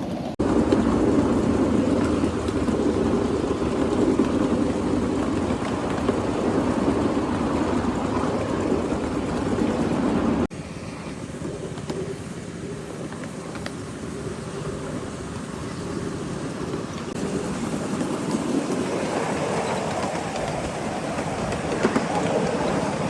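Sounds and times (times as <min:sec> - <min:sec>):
miniature steam train wheels on track: 0:00.0 - 0:10.5, 0:11.2 - 0:23.0
wind: 0:00.0 - 0:23.0.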